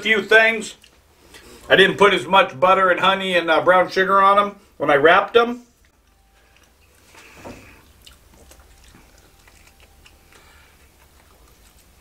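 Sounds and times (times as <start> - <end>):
people chewing ribs: 0.7 - 1.7, 5.8 - 12.0.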